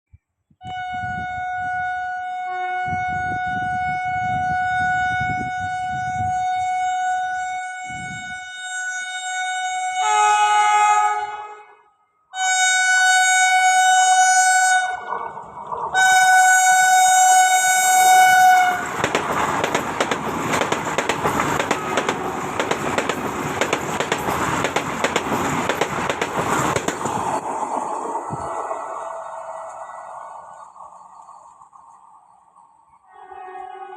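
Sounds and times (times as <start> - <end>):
train horn blasts: 0.6 - 19.0, 33.1 - 33.9
train rushing past: 13.8 - 33.9.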